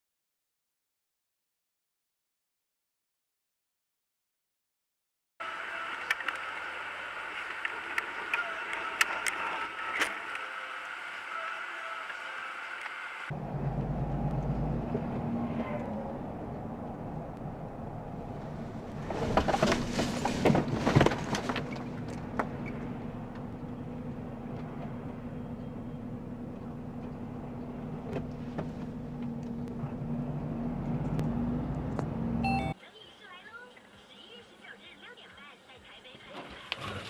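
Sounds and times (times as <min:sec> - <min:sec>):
car engine and road drone: 0:05.4 - 0:32.8
collision knocks and crunches: 0:19.0 - 0:22.6.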